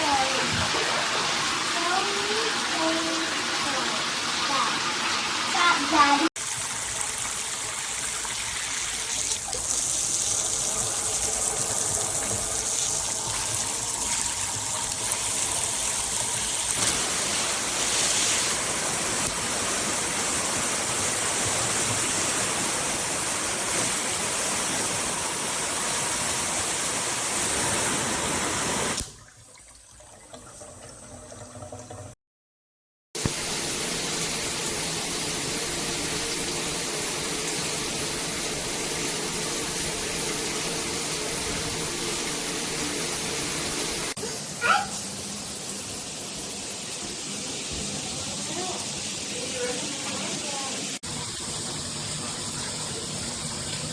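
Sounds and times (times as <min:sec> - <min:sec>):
shower spray hissing: 0:00.0 - 0:06.3, 0:08.4 - 0:29.0, 0:33.2 - 0:53.9.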